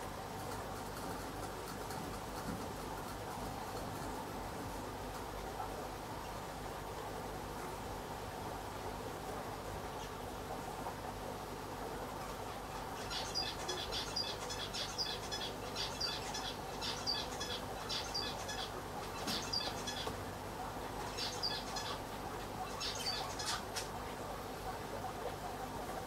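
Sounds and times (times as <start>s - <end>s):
aquarium equipment hum: 0.0s - 26.0s
small bird chirping: 13.0s - 20.1s, 21.1s - 22.0s, 22.6s - 23.9s.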